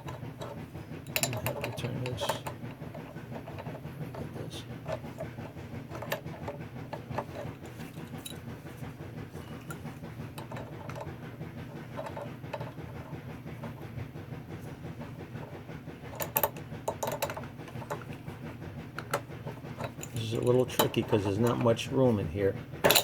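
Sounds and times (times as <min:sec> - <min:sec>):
steady low hum: 0:00.0 - 0:23.0
wrench clinking on metal fitting: 0:01.1 - 0:02.6.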